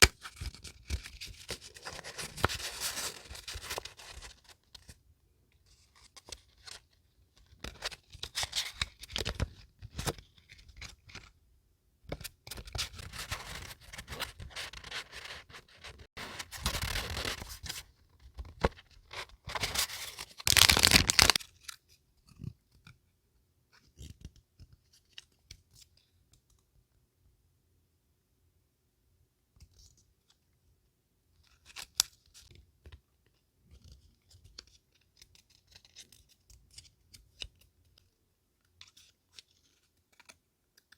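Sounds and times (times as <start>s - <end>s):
paper rustling: 12.9s - 17.8s, 18.6s - 21.8s.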